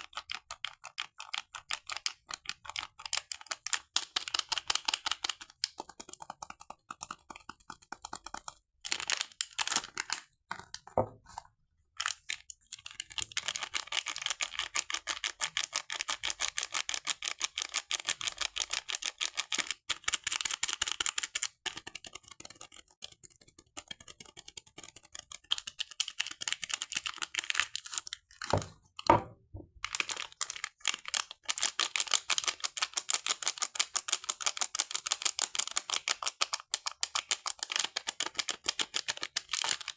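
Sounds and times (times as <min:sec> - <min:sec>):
soap packaging crinkling: 0:00.3 - 0:17.0, 0:24.8 - 0:29.1, 0:29.8 - 0:39.9.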